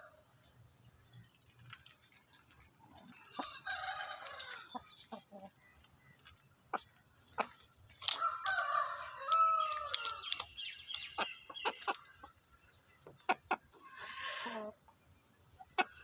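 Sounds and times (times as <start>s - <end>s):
rooster crowing: 8.2s - 10.1s.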